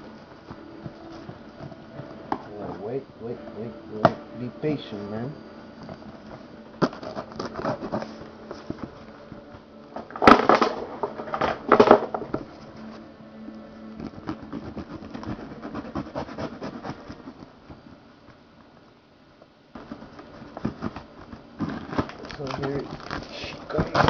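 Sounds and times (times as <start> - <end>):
cardboard and plastic packaging rustling: 0.0 - 18.4, 19.8 - 24.0.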